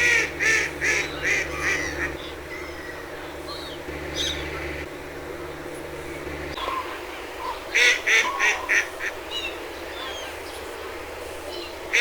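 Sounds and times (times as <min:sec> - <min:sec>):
duck quacking: 0:00.0 - 0:02.9, 0:06.6 - 0:09.2.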